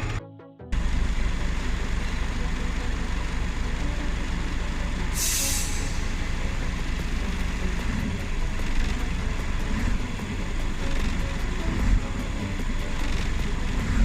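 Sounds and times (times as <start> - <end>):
diesel truck engine rumbling: 0.0 - 14.0
air brake hiss: 5.1 - 6.4.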